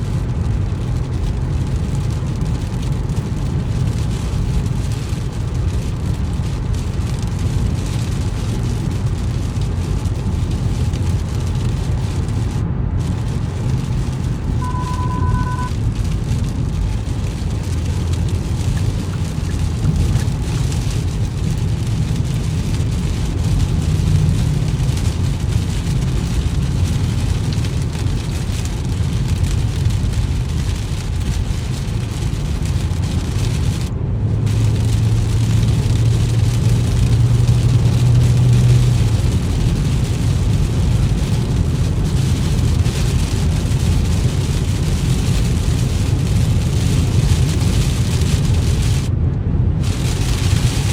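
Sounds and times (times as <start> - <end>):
car road and engine rumble: 0.0 - 50.9
rain hissing: 0.1 - 49.1, 49.8 - 50.9
low hum: 12.4 - 16.0.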